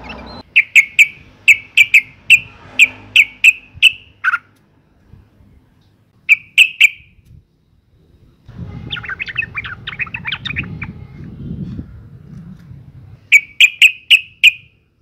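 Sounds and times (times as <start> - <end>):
bird calling and chattering: 0.0 - 4.5, 8.9 - 11.0
low background rumble: 7.1 - 13.3.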